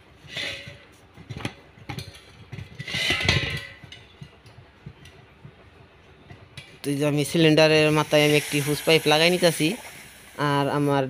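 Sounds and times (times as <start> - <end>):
rustling and scraping: 0.0 - 6.9.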